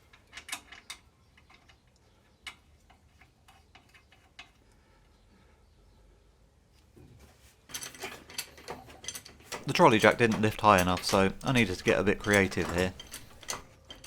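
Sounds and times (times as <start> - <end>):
metallic tool clicks: 9.6 - 13.7.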